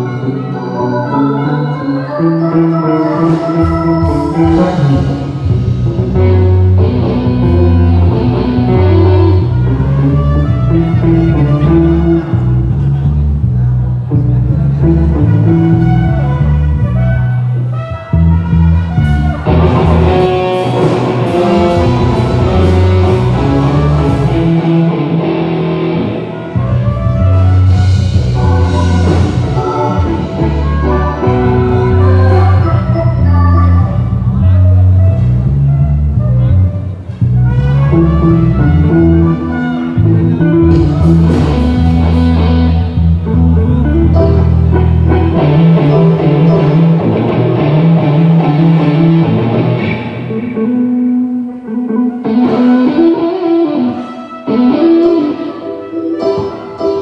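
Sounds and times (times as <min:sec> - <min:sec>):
band music through a pa: 0:00.0 - 0:57.0
guitar: 0:00.0 - 0:57.0
steady bass line: 0:01.4 - 0:53.5
drum kit: 0:03.1 - 0:10.0, 0:18.0 - 0:33.2, 0:37.0 - 0:50.6.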